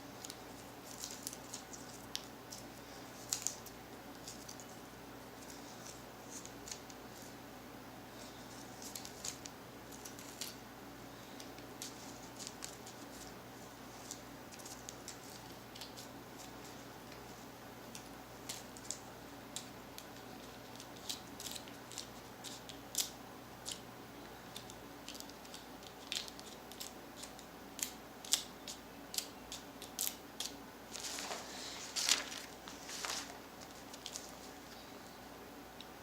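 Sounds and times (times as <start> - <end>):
rustling scrape: 30.9 - 34.7.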